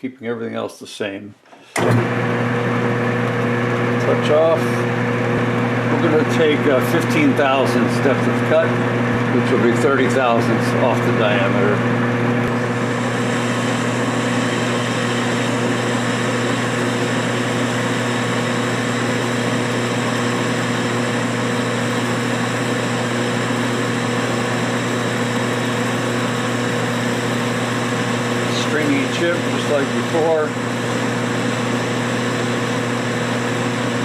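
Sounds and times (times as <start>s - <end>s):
lathe motor humming: 1.7s - 34.0s
lathe tool cutting steel: 12.5s - 34.0s.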